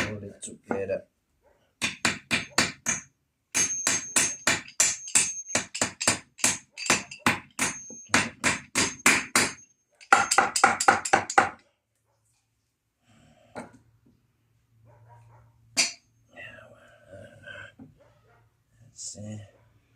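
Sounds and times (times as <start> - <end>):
hammer driving nails: 1.8 - 11.6.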